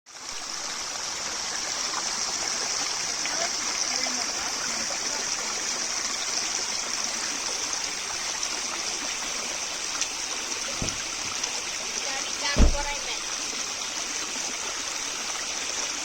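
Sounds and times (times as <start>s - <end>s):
creek water rushing: 0.1s - 16.0s
low thump: 10.7s - 11.3s, 12.5s - 13.0s.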